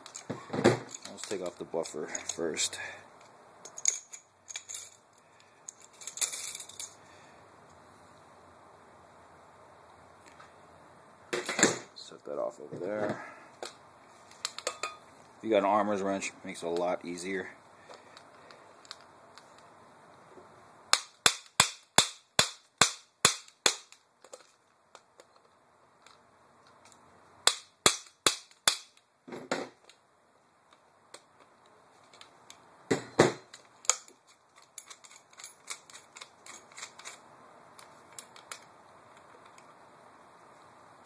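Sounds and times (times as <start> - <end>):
metal wrench clicks: 33.5 - 37.2.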